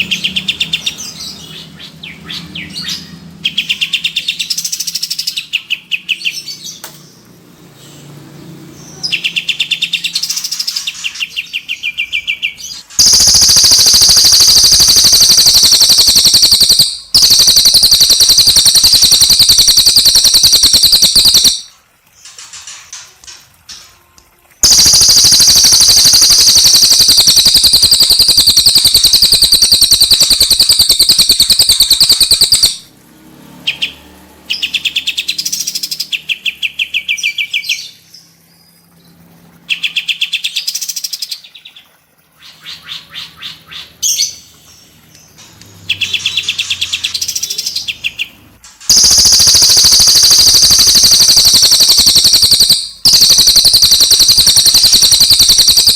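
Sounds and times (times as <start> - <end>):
songbirds singing in rapid trills: 8.9 - 21.7, 24.6 - 32.8, 45.9 - 55.9.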